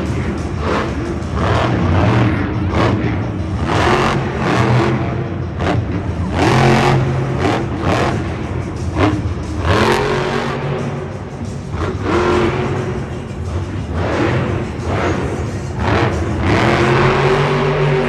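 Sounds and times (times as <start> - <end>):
truck engine revving hard: 0.0 - 18.0.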